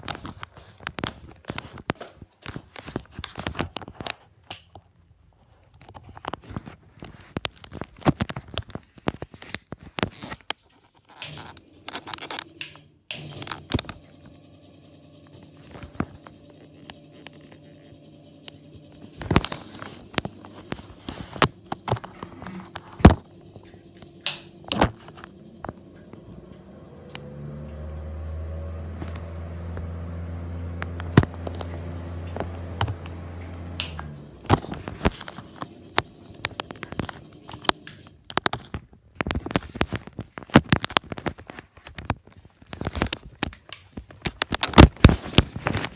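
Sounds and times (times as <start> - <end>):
deep fan hum spinning up: 11.2 - 38.3
exhaust fans humming: 11.2 - 38.6
sharp clicks and knocks: 15.3 - 30.0.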